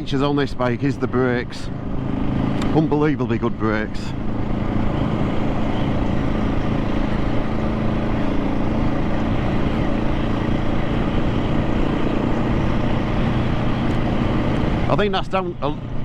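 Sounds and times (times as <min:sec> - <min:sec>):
motorcycle engine running steadily: 0:00.0 - 0:16.0.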